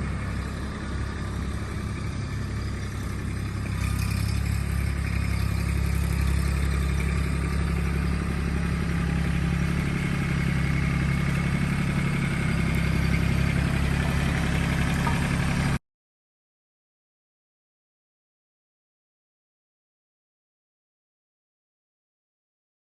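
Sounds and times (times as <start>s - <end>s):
tractor diesel engine running: 0.0s - 15.8s.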